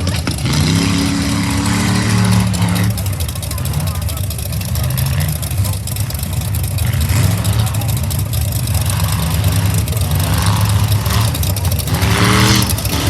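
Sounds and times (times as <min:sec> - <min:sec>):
heavy truck engine rumbling: 0:00.0 - 0:13.0.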